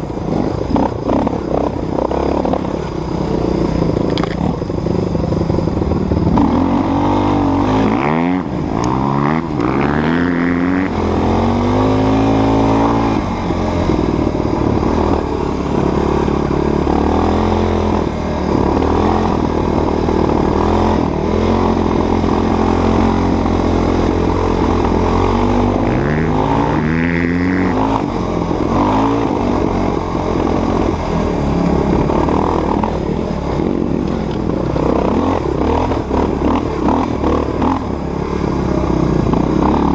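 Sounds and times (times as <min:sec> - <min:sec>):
dirt bike engine revving: 0:05.3 - 0:39.9.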